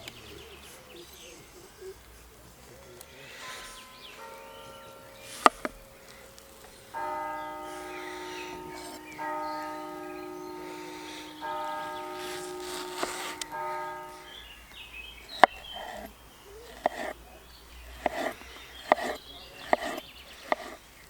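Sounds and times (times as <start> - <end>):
church bell tolling: 3.2 - 15.4.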